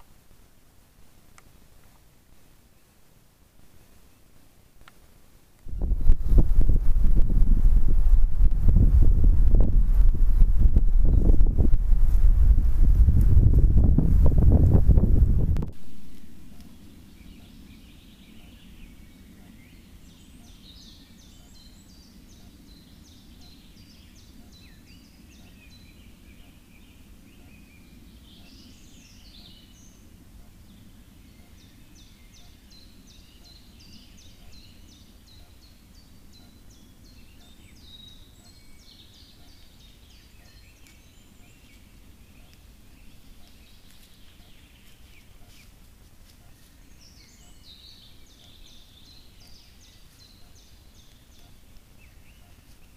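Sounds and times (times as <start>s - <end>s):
faint songbirds singing: 1.0s - 6.7s, 9.5s - 11.8s, 15.8s - 52.9s
steady low rumble: 5.7s - 20.1s.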